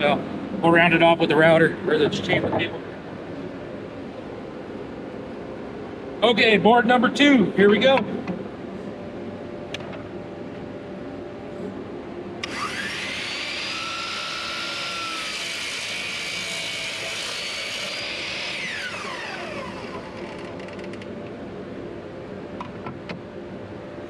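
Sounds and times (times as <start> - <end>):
miter saw whining: 12.4 - 21.1.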